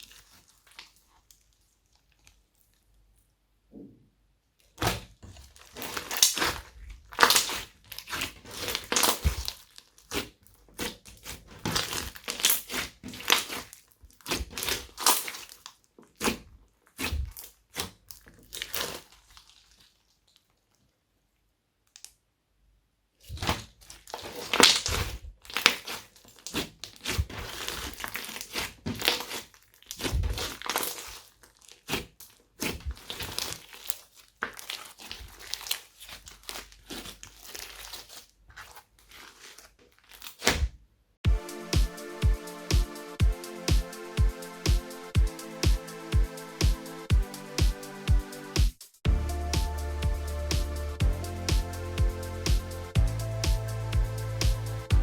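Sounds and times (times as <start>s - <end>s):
slime crackling when kneaded: 4.8s - 19.8s, 23.4s - 40.6s.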